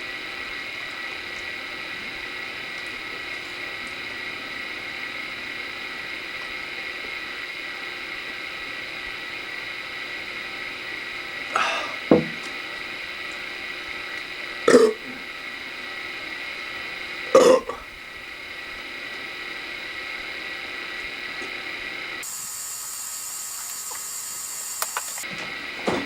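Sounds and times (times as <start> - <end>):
steady hiss: 0.0 - 26.0
thin high-pitched whine: 0.0 - 26.0
man burping: 11.5 - 12.4, 14.6 - 15.2, 17.3 - 17.9.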